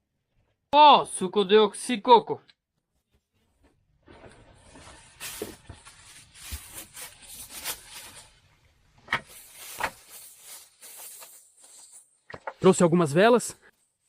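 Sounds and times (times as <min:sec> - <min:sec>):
packaging and gear rustling: 0:04.2 - 0:08.6, 0:09.2 - 0:12.2.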